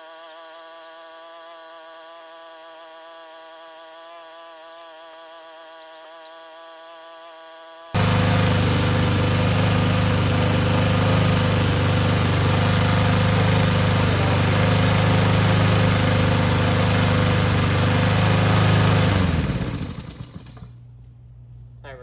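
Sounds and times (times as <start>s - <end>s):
lawnmower engine running: 8.0s - 20.8s.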